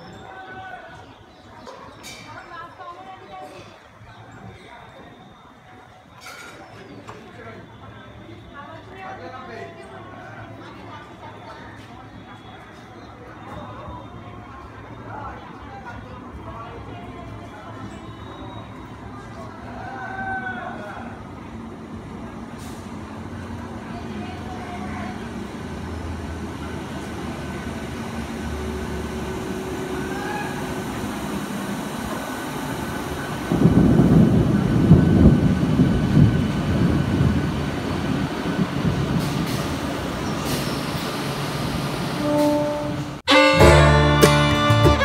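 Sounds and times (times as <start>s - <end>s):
train rumbling: 7.0s - 45.0s
music: 43.3s - 45.0s.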